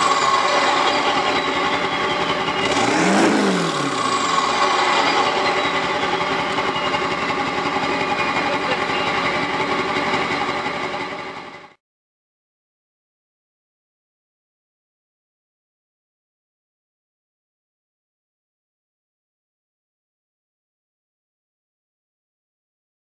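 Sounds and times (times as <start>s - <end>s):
high turbo whistle: 0.0s - 10.6s
diesel engine idling loudly: 0.0s - 11.8s
diesel engine rev: 0.0s - 11.8s.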